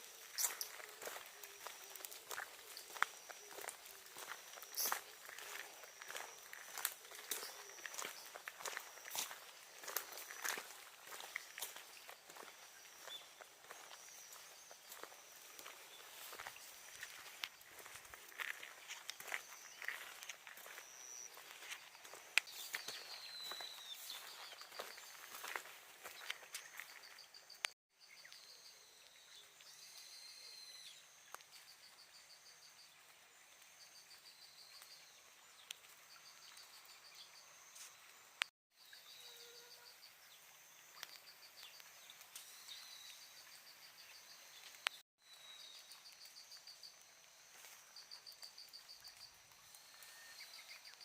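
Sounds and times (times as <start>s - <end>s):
bird chirps: 0.0s - 31.7s, 47.9s - 51.0s
insects chirping: 0.0s - 51.0s.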